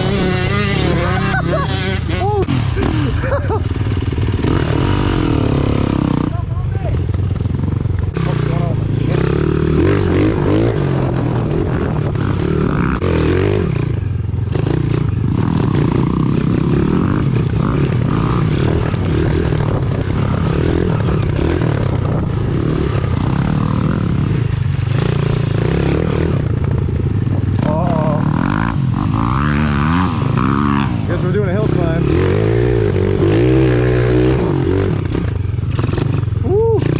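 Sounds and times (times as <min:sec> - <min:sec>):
small motorbike engine revving: 0:00.0 - 0:06.4, 0:07.2 - 0:26.6, 0:27.6 - 0:36.9.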